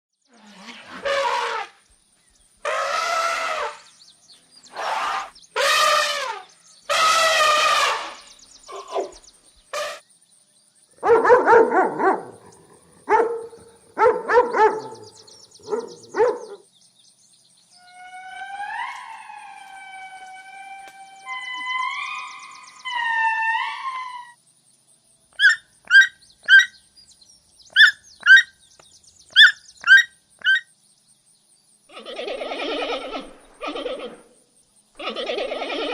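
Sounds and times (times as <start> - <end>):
animal calls: 2.6 - 3.9, 4.7 - 10.0, 11.0 - 16.6, 17.8 - 24.4, 25.4 - 26.8, 27.7 - 28.6, 29.3 - 30.7, 31.9 - 35.9.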